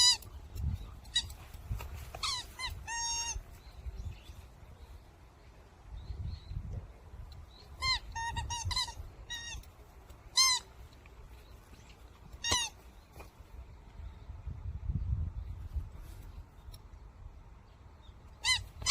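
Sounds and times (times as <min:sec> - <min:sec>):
squeaky toy squeaks: 0:00.0 - 0:00.3, 0:01.1 - 0:01.4, 0:02.2 - 0:03.5, 0:07.7 - 0:09.7, 0:10.3 - 0:10.7, 0:12.4 - 0:12.8, 0:18.4 - 0:18.9.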